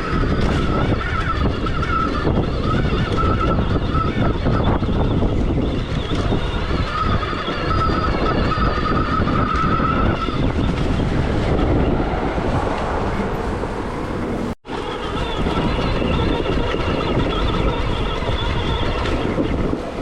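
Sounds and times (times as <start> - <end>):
heavy low rumble: 10.2 - 14.6.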